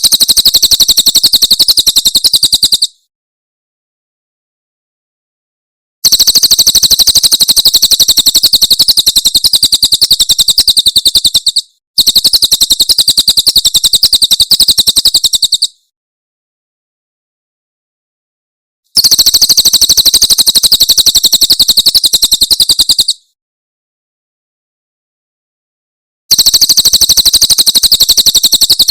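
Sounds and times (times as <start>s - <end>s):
bird singing fast high trills: 0.0s - 3.0s, 6.0s - 15.8s.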